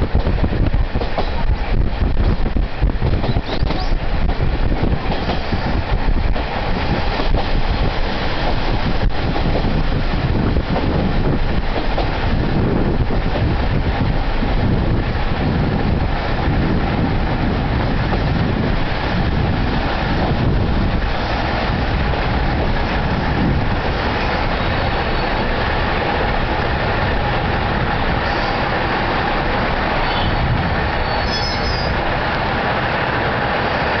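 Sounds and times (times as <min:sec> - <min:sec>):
railcar engine and wheels running: 0:00.0 - 0:34.0
brief high squeal: 0:31.0 - 0:31.9.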